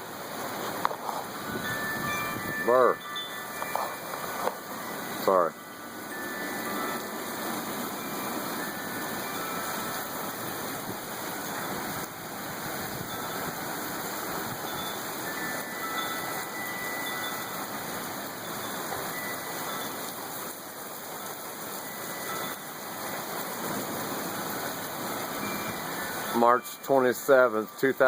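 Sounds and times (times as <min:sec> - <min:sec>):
heavy rain rushing hiss: 0:00.0 - 0:28.0.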